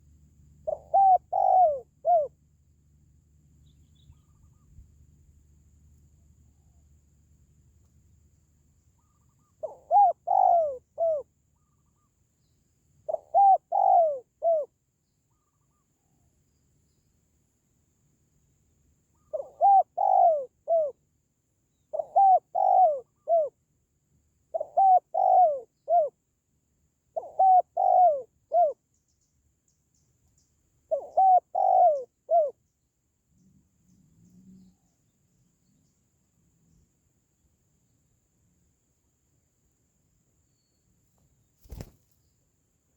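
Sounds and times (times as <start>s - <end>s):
dove cooing: 0.6s - 2.3s, 9.6s - 11.2s, 13.1s - 14.7s, 19.3s - 21.0s, 21.9s - 23.5s, 24.5s - 26.1s, 27.2s - 28.8s, 30.9s - 32.6s.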